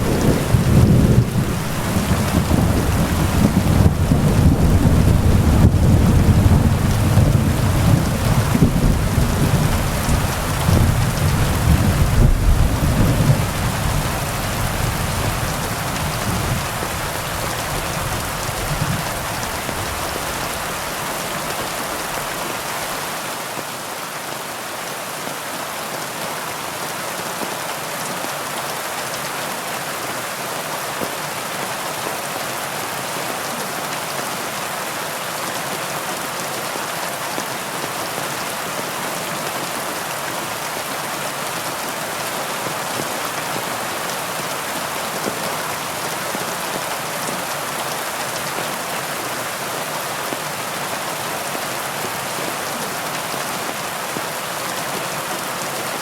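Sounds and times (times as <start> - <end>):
rumble of thunder: 0.0 - 20.6
heavy rain hissing: 0.0 - 23.4.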